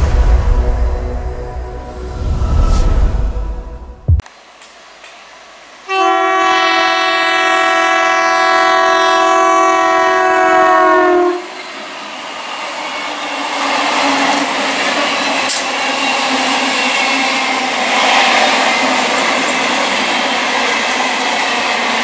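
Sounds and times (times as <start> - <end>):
train horn blast: 5.8 - 11.6
train wheels clattering on rails: 13.8 - 22.0.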